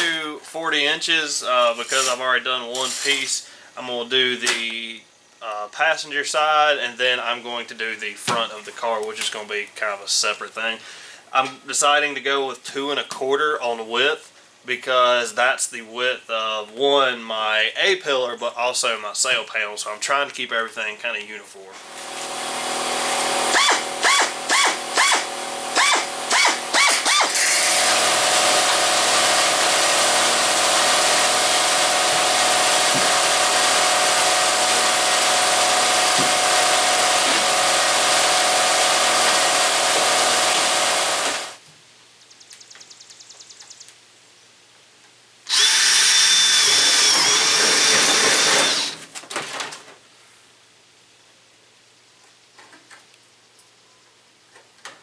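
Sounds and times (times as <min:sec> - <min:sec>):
power tool whining on sheet metal: 0:21.8 - 0:41.6, 0:45.5 - 0:49.0.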